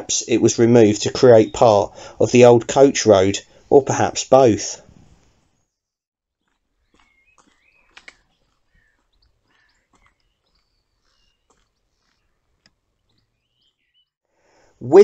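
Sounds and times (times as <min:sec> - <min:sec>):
faint birdsong: 0:00.0 - 0:03.9, 0:04.8 - 0:14.9
faint clicks: 0:07.4 - 0:09.1.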